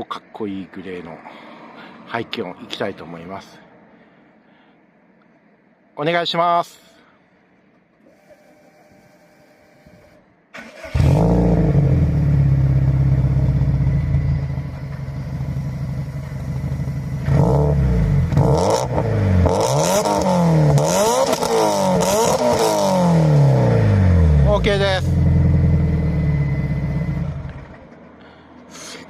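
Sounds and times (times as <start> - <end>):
car engine starting and idling: 10.2 - 28.7
car engine revving: 10.6 - 27.8.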